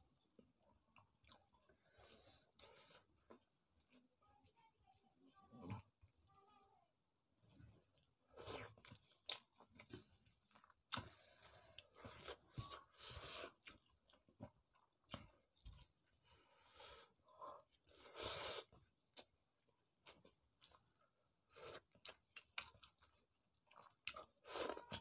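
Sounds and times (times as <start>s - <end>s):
people chewing and biting: 7.5s - 16.8s, 17.7s - 25.0s.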